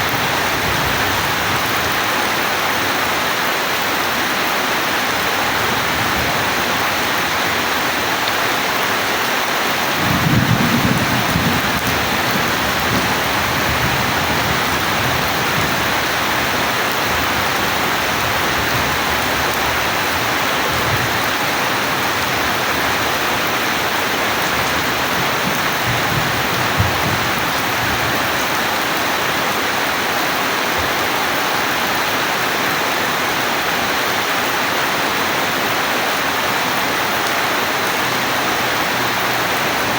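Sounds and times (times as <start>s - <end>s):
steady rain falling: 0.0s - 39.9s
low thunder rumble: 10.0s - 19.6s, 24.4s - 28.4s.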